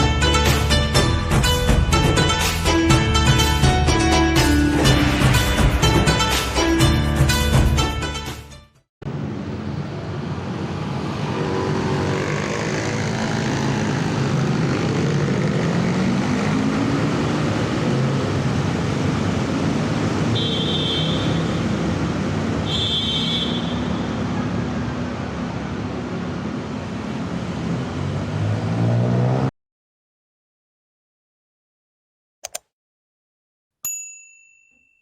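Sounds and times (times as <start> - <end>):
traffic noise: 9.0 - 29.5
motorbike engines revving: 9.5 - 20.4.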